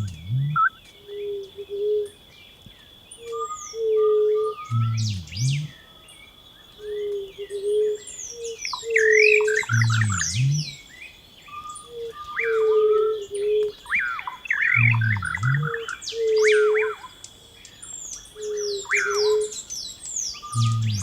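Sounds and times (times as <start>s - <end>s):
birds chirping and calling: 0.0s - 0.7s, 3.2s - 5.8s, 6.9s - 10.9s, 11.5s - 17.0s, 18.2s - 21.0s
low repeating pattern: 0.0s - 0.7s, 4.7s - 5.7s, 9.7s - 10.7s, 14.8s - 15.7s, 20.6s - 21.0s
steady high tone: 20.6s - 21.0s.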